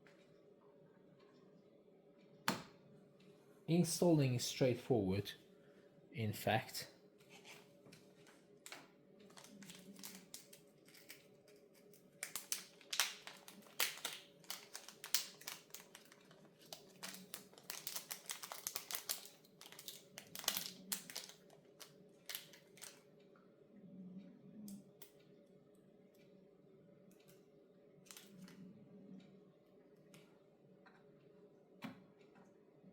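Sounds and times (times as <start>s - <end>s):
packaging crinkling: 9.3s - 23.0s.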